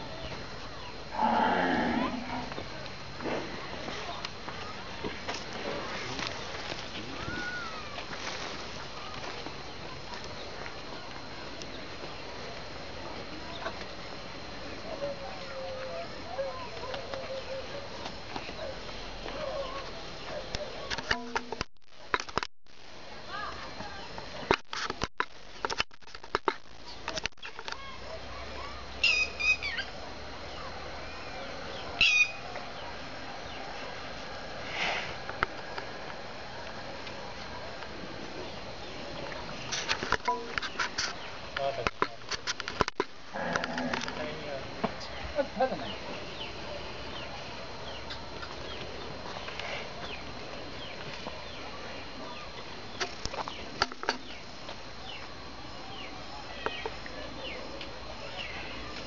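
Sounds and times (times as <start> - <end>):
outdoor background noise: 0.0 - 59.0
steady background noise: 0.0 - 59.0
small birds chirping: 26.8 - 34.0, 45.0 - 59.0
bird chirping: 29.0 - 29.9.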